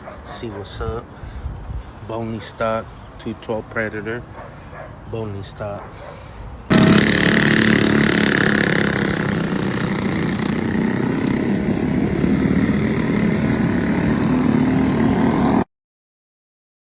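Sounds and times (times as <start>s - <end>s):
small engine running: 6.7s - 15.5s.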